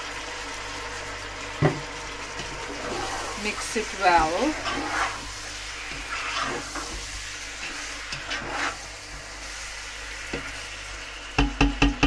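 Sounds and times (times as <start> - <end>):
food sizzling in a wok: 0.0 - 12.0
spatula stirring in a wok: 2.4 - 10.8.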